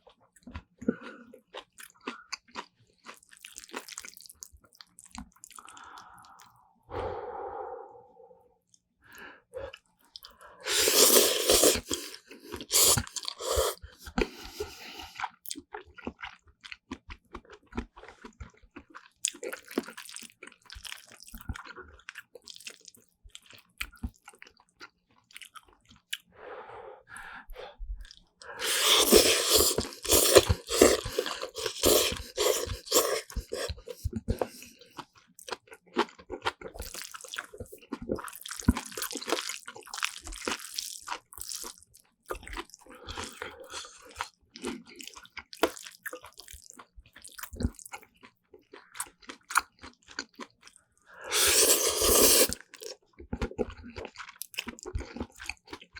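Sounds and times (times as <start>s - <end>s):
wet chewing and biting: 10.2s - 26.3s, 28.0s - 55.9s.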